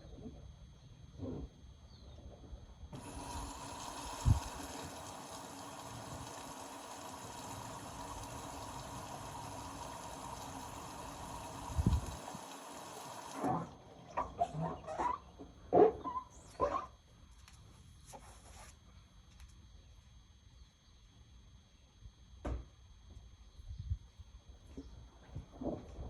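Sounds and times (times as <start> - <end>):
water rushing into washing machine: 3.0 - 15.2.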